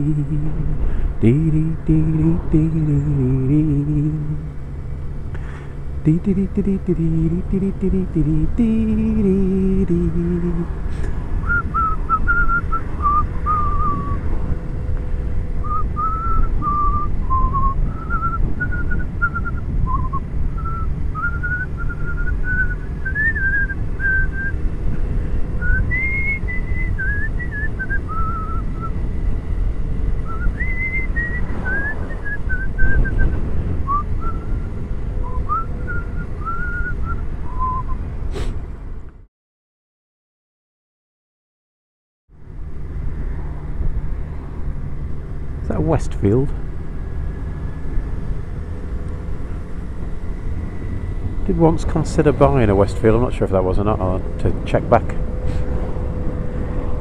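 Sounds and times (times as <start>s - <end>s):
motorcycle wind and road noise: 10.7s - 36.4s, 46.2s - 57.0s
person whistling a tune: 11.4s - 14.3s, 15.6s - 24.6s, 25.6s - 28.9s, 30.2s - 34.6s, 35.2s - 38.0s.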